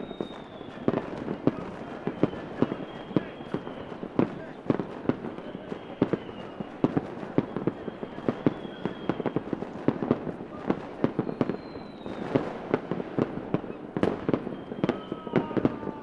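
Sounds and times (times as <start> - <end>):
faint descending whistle: 0.0 - 1.0, 2.0 - 4.0, 5.5 - 6.7, 7.4 - 9.4, 11.2 - 12.4, 14.4 - 16.0
fireworks bangs and crackles: 0.0 - 16.0.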